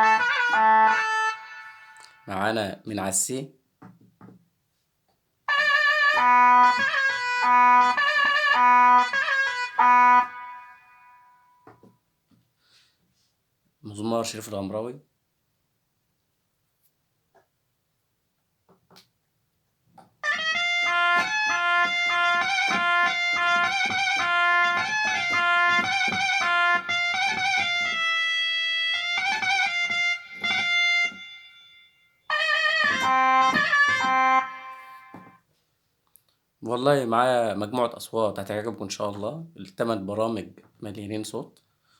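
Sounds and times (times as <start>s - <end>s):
keyboard melodic phrase: 0.0s - 2.3s, 5.6s - 11.3s, 20.2s - 35.4s.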